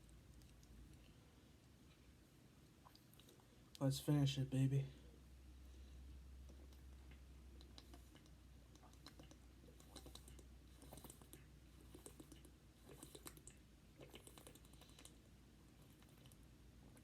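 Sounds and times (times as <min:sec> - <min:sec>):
mouth clicks: 0:06.4 - 0:15.2.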